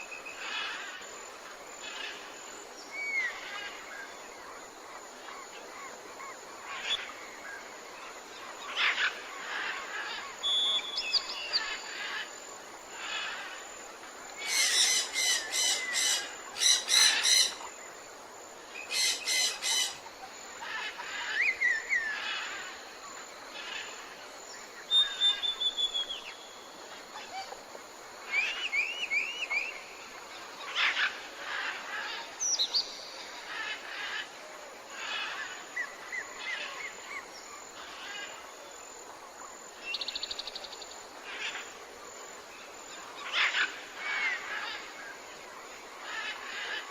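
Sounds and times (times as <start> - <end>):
faint steady hiss: 0.0 - 46.9
birds chirping and trilling: 14.3 - 17.9, 18.7 - 27.6
bird whistles: 25.0 - 26.2.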